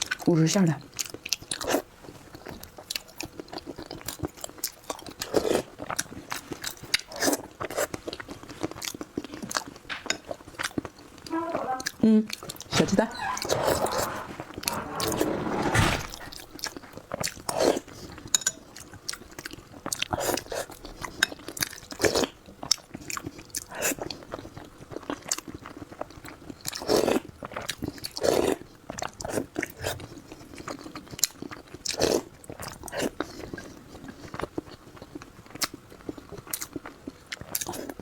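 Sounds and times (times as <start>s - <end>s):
person chewing food: 0.9s - 12.6s, 16.3s - 38.0s.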